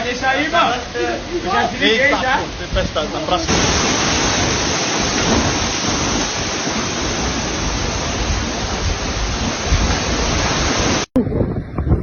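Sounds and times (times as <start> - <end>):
heavy rain pouring: 0.0 - 11.7
gusty wind rumbling: 2.4 - 12.0.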